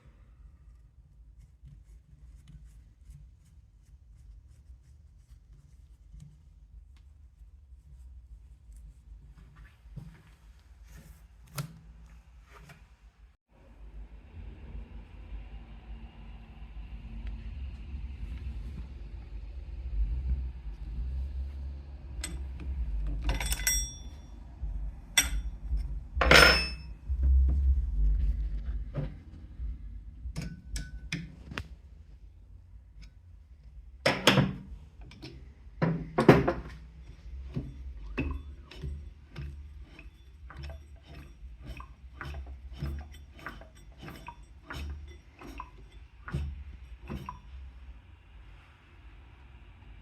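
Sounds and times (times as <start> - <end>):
low rumble: 13.5 - 34.0
steady low hum: 13.6 - 50.0
metal tools clinking and knocking: 23.2 - 24.3, 25.2 - 26.9.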